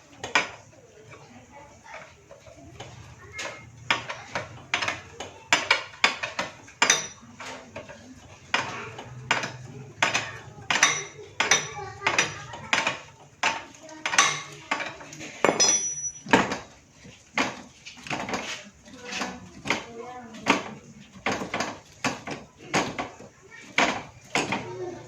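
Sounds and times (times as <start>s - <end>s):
metal tools clinking: 15.4s - 16.4s.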